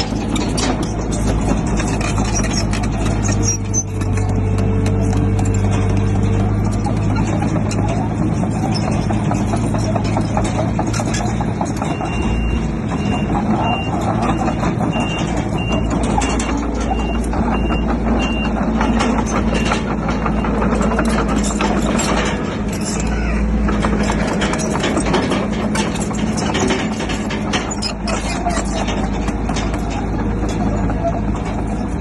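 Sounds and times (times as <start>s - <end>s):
diesel engine under load: 0.0s - 32.0s
steel tracks clanking: 0.0s - 32.0s
reversing alarm beeping: 11.9s - 19.8s.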